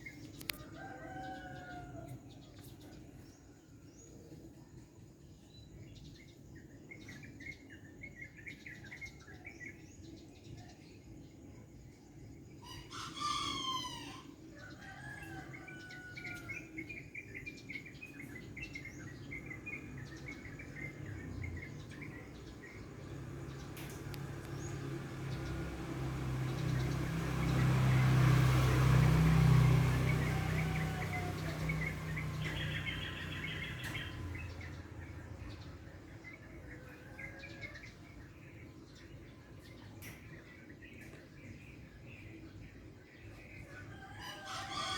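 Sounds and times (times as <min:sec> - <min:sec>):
small birds chirping: 0:00.0 - 0:44.9
rooster crowing: 0:00.5 - 0:02.4, 0:12.7 - 0:16.9, 0:24.0 - 0:34.4, 0:43.7 - 0:44.9
low vehicle rumble: 0:17.3 - 0:43.7.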